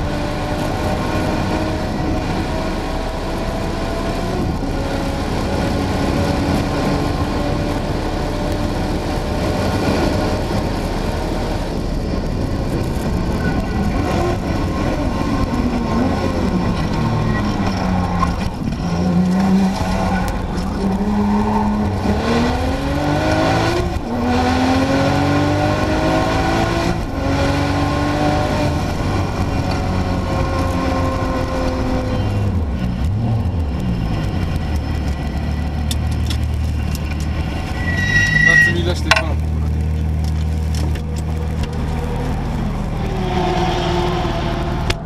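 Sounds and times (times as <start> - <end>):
car engine climbing through gears: 0.0 - 45.0.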